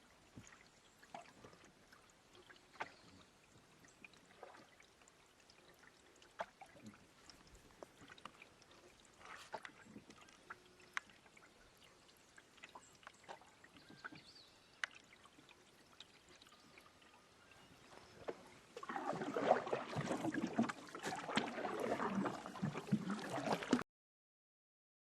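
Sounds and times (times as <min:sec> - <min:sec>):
water splashing around a canoe: 0:00.0 - 0:23.8
faint drips: 0:00.2 - 0:19.9.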